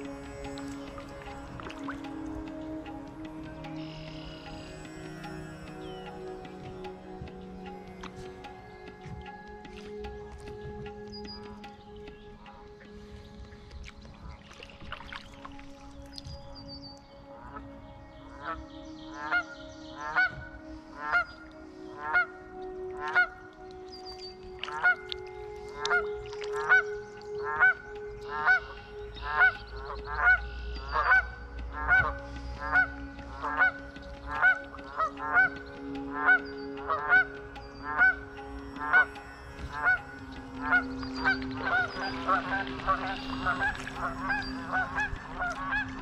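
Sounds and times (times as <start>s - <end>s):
low steady drone: 0.0s - 46.0s
bird calling: 14.1s - 46.0s.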